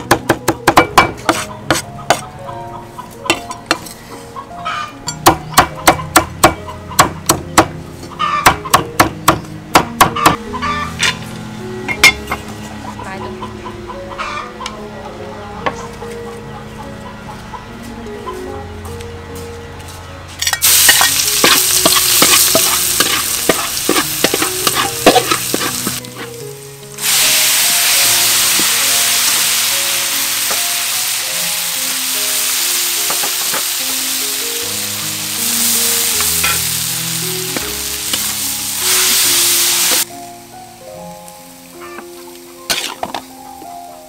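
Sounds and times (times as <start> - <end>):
vegetables sizzling in a pan: 20.6 - 26.3, 26.9 - 40.1, 41.1 - 43.0.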